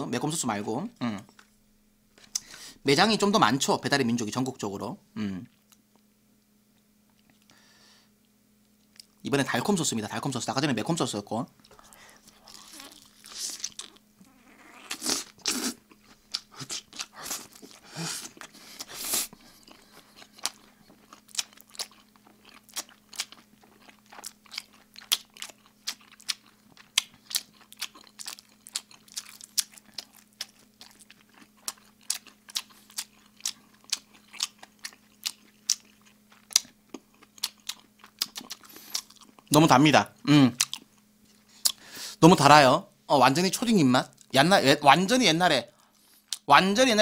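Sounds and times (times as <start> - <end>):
person chewing with wet smacking: 11.6 - 39.6, 40.2 - 41.8.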